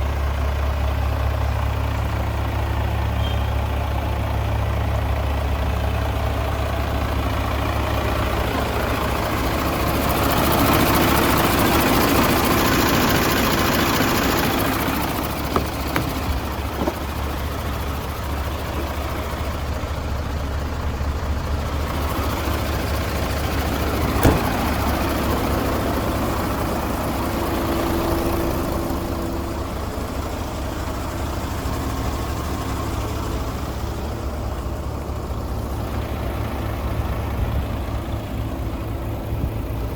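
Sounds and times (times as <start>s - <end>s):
engine idling: 0.0s - 39.9s
sharp knocks: 15.4s - 17.1s, 24.2s - 24.8s.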